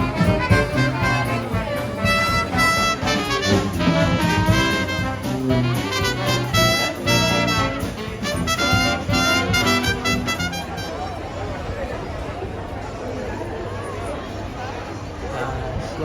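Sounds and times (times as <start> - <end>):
bass line: 0.0 - 11.0
brass horns playing jazz melody: 0.0 - 11.3.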